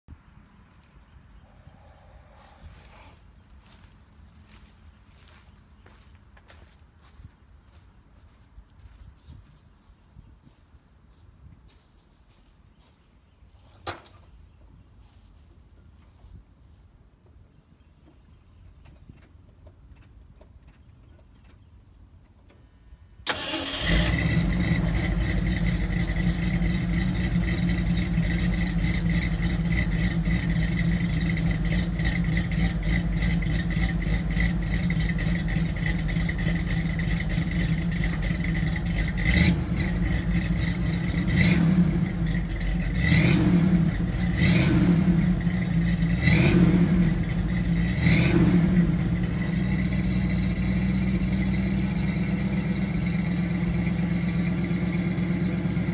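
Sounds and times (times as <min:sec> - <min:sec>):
truck engine starting and revving: 0:23.2 - 0:55.9.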